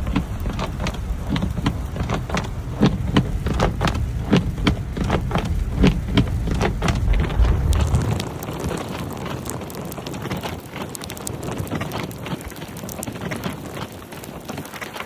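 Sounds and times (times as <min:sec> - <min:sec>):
low rumble: 0:00.0 - 0:10.3
sleet pattering on surfaces: 0:00.0 - 0:15.0.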